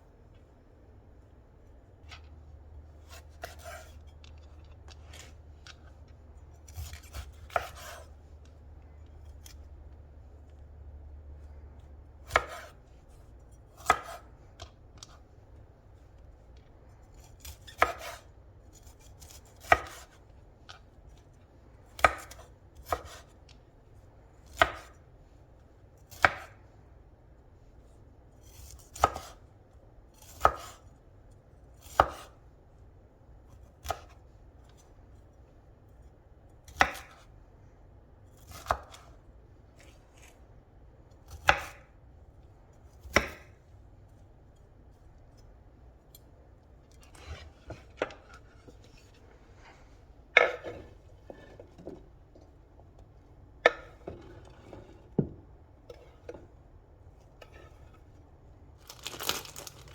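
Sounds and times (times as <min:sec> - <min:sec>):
knife chopping on cutting board: 0:03.0 - 0:05.3, 0:06.7 - 0:08.2, 0:12.2 - 0:12.8, 0:13.7 - 0:15.2, 0:17.4 - 0:20.2, 0:21.9 - 0:23.3, 0:24.4 - 0:25.0, 0:26.1 - 0:26.6, 0:28.5 - 0:29.4, 0:30.2 - 0:30.8, 0:31.8 - 0:32.4, 0:33.7 - 0:34.2, 0:36.6 - 0:37.3, 0:38.4 - 0:39.1, 0:41.3 - 0:41.9, 0:42.9 - 0:43.6, 0:47.0 - 0:49.1, 0:50.3 - 0:52.0, 0:53.6 - 0:56.5.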